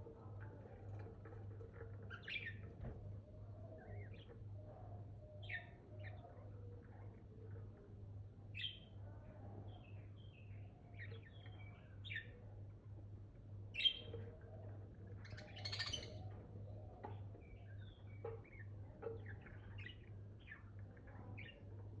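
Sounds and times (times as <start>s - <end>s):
budgerigars chirping and warbling: 15.2s - 16.3s.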